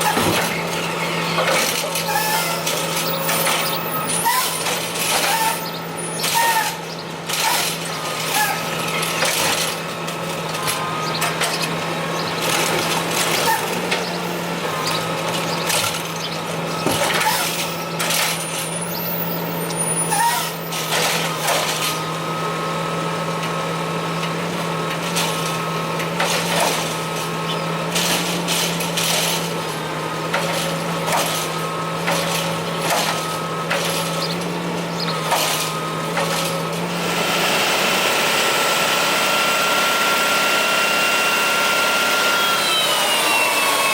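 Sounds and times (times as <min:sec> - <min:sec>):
truck arm clanking and knocking: 0:00.0 - 0:18.8, 0:24.2 - 0:36.9
garbage truck engine running: 0:00.0 - 0:43.9.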